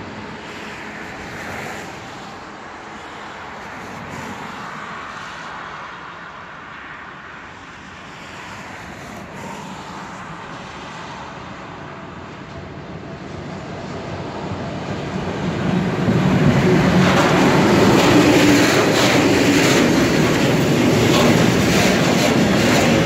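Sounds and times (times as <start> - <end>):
freight train rumble: 9.2 - 23.0.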